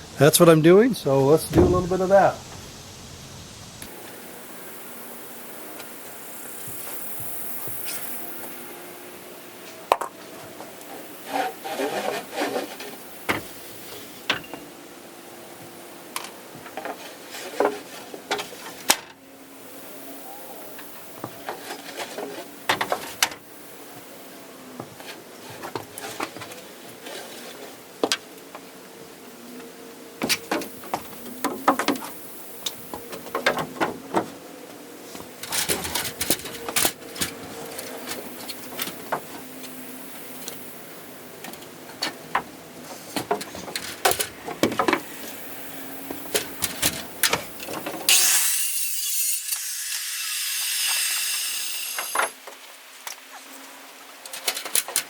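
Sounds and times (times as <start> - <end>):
wooden boards knocking and clattering: 1.5 - 2.3, 32.9 - 34.4, 43.2 - 45.1.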